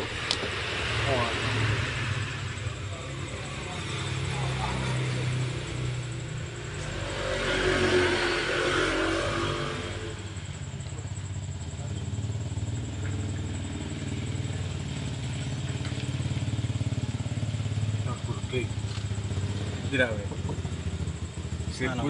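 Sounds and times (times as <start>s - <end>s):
louder engine sound: 0.0s - 22.0s
car engine idling: 10.0s - 22.0s.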